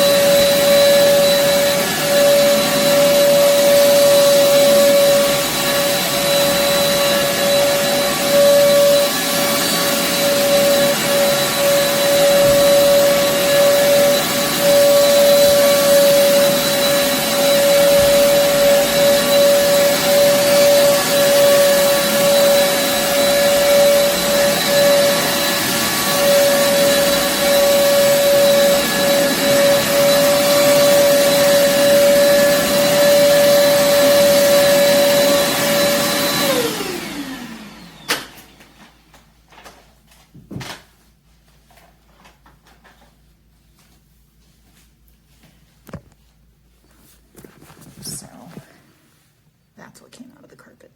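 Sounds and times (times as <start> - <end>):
vacuum cleaner whining on carpet: 0.0 - 39.2.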